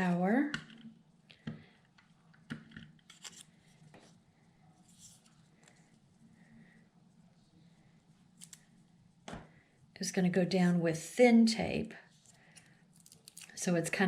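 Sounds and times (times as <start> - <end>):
paper rustling: 3.0 - 4.0.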